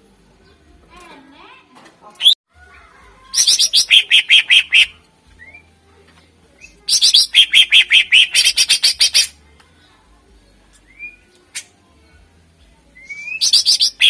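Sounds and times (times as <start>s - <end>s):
bird singing rapid notes: 3.4s - 5.7s, 6.6s - 9.3s, 13.0s - 14.0s.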